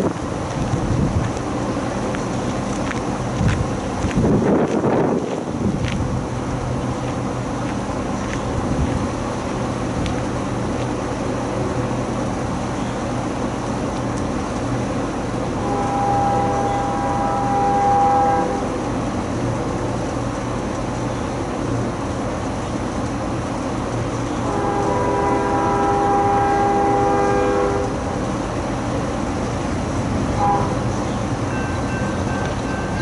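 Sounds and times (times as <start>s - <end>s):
locomotive horn chord: 15.6s - 18.8s, 24.4s - 28.1s, 30.4s - 33.0s.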